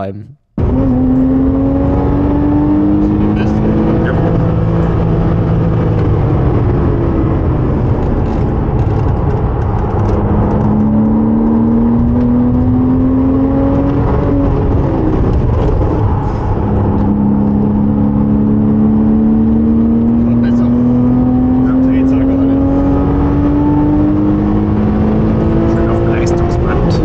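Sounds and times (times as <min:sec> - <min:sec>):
car engine accelerating: 0:00.6 - 0:27.0.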